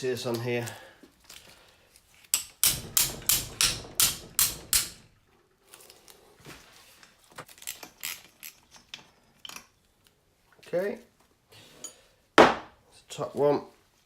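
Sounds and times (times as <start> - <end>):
sharp hammer knocks: 2.4 - 5.1.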